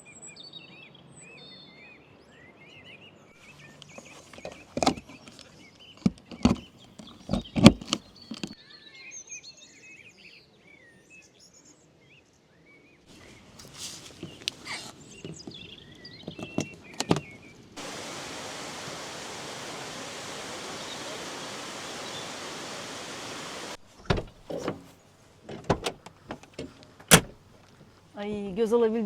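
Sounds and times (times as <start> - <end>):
birds chirping: 15.0 - 25.1
rush of water: 17.8 - 24.3.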